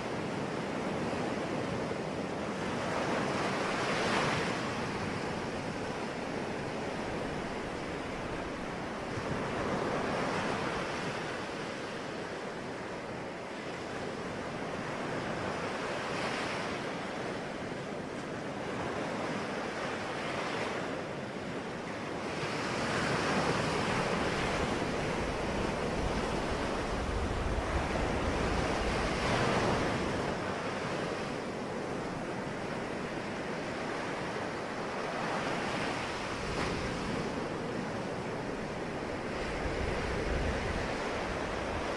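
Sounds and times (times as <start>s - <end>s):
sea waves breaking on shore: 0.0s - 41.9s
wind buffeting microphone: 23.4s - 30.4s, 36.3s - 41.9s.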